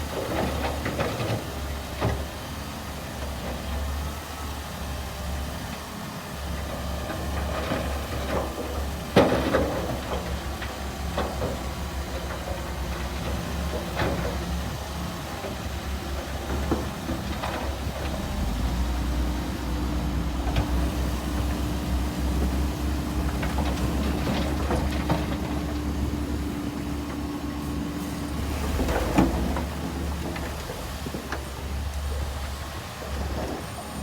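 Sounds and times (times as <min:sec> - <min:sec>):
bulldozer diesel engine rumble: 0:00.0 - 0:34.0.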